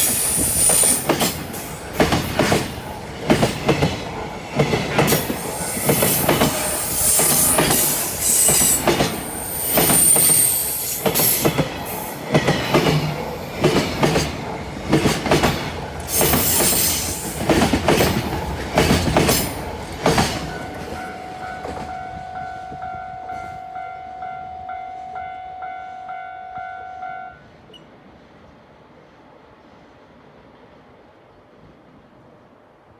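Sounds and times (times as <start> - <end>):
train wheels clattering: 0.0 - 22.8.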